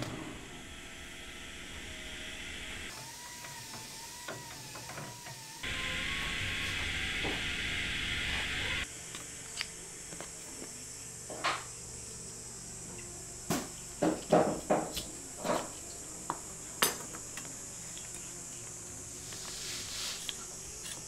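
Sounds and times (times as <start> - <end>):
faint hiss: 16.6 - 20.8.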